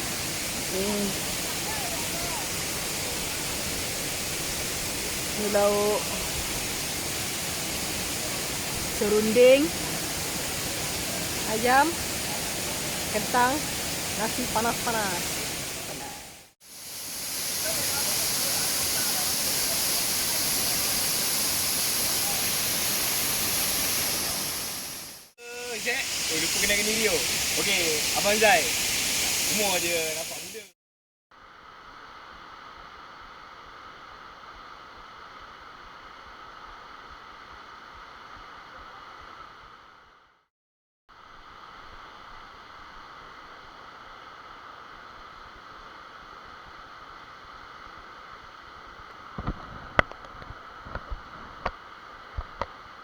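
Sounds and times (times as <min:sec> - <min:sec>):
waterfall roaring: 0:00.0 - 0:16.4, 0:17.0 - 0:30.6.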